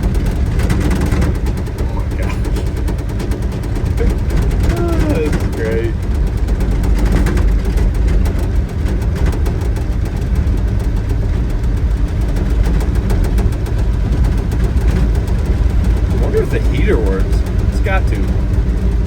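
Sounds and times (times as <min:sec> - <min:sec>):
rattles and clicks in cab: 0:00.0 - 0:19.0.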